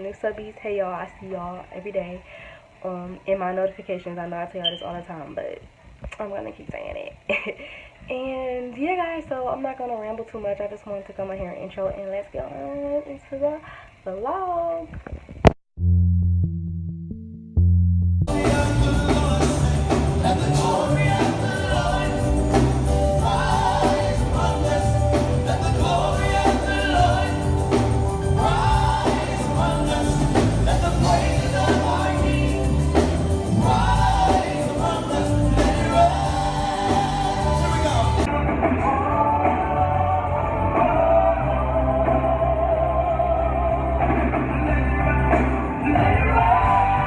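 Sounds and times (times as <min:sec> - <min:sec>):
steady bass and beat: 0:15.8 - 0:41.0
gospel song with sung vocals: 0:18.3 - 0:47.0.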